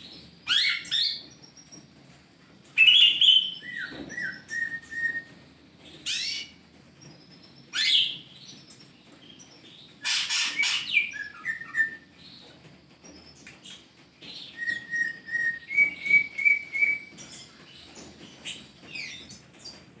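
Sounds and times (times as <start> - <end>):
whistled bird notes: 2.8 - 5.4, 10.0 - 12.1, 14.3 - 17.5
bird calling: 10.0 - 12.1.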